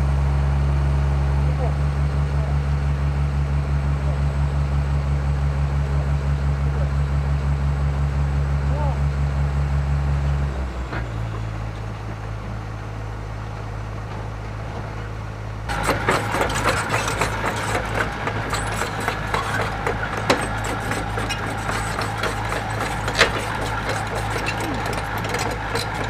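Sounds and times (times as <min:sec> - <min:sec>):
excavator diesel engine idling: 0:00.0 - 0:26.0
clatter of knocks and scrapes: 0:15.7 - 0:26.0.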